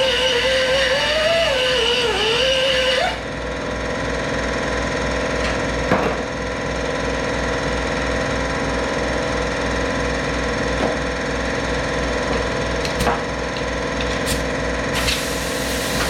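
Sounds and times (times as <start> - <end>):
electric grinder grinding cast iron: 0.0 - 3.3.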